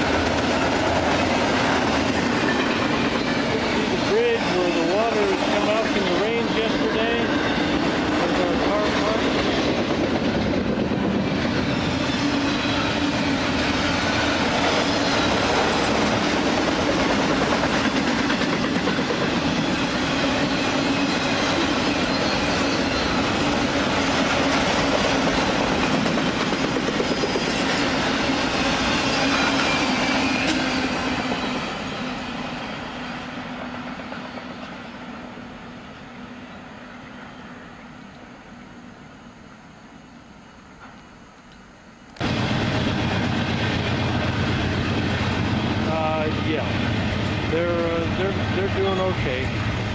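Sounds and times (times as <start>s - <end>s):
train wheels clattering on rail: 0.0s - 32.8s, 33.5s - 35.1s
high wheel squeal: 2.2s - 9.6s, 11.0s - 15.9s, 19.4s - 24.0s, 27.0s - 33.2s.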